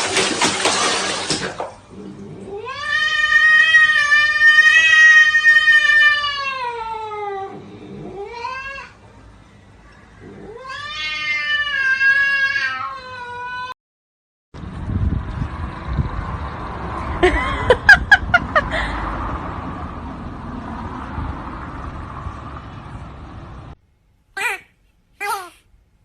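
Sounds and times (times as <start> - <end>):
cat yowling: 2.5 - 9.0, 10.4 - 13.8.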